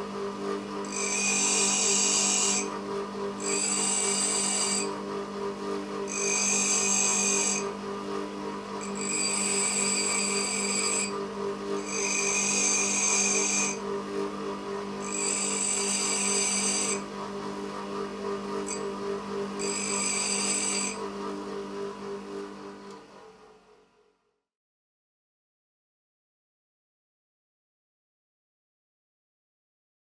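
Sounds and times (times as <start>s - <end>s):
drill bit grinding whine: 0.8s - 2.8s, 3.4s - 5.0s, 6.0s - 7.8s, 8.8s - 13.9s, 14.9s - 17.1s, 18.4s - 21.2s
electric grinder humming: 0.8s - 2.8s, 3.4s - 5.0s, 6.0s - 7.8s, 8.8s - 14.0s, 14.8s - 17.5s, 18.2s - 21.2s.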